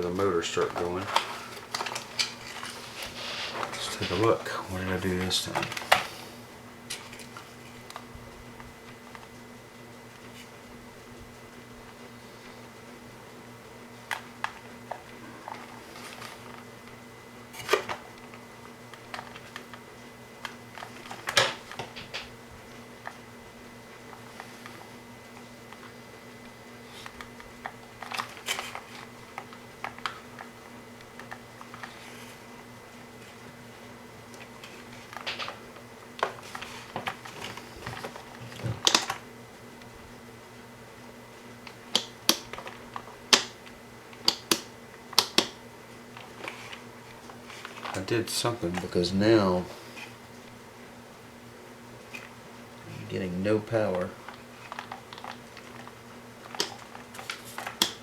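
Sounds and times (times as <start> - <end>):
faint steady hum: 0.0 - 58.0
plastic parts clicking and rattling: 0.5 - 2.8, 27.0 - 30.5, 41.9 - 43.5, 53.9 - 58.0.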